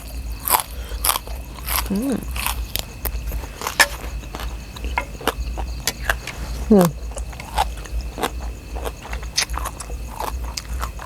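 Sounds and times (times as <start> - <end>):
person chewing with crunches: 0.0 - 11.0
person humming: 1.8 - 2.4, 6.6 - 7.0.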